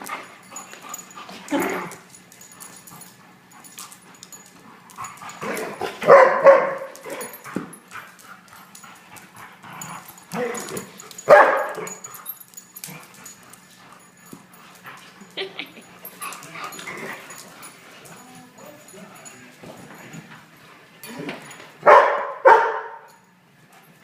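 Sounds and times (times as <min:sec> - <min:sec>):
dog barking and yipping: 0:05.8 - 0:07.4, 0:10.4 - 0:12.0, 0:21.8 - 0:23.1.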